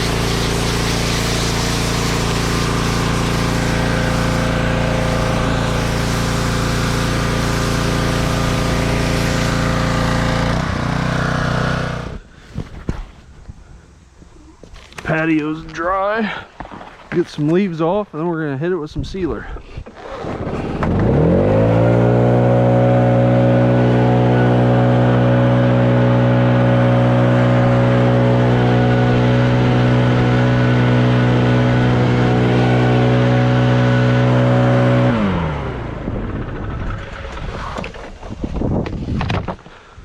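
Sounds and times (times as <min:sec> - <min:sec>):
leaf blower running: 0:00.0 - 0:12.3, 0:19.9 - 0:38.2.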